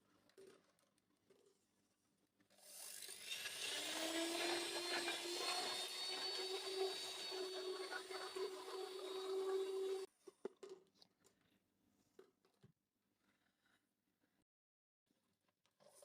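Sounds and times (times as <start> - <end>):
electric motor whirring: 2.7 - 10.1.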